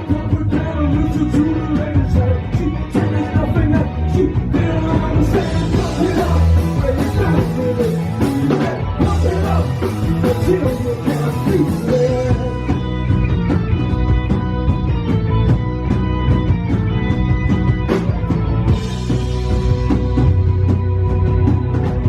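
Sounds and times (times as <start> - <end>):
person singing: 0.0 - 13.0
bass guitar: 0.0 - 22.0
drums: 0.0 - 22.0
electric guitars: 0.0 - 22.0.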